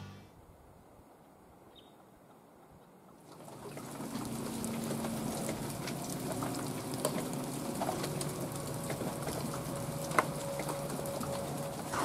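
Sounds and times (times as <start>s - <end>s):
small drips and ticks: 3.1s - 12.0s
rain and wet snow falling: 3.2s - 12.0s.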